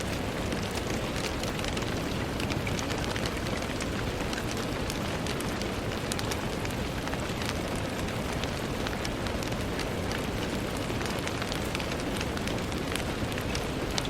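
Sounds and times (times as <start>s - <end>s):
rain on a window: 0.0s - 14.0s.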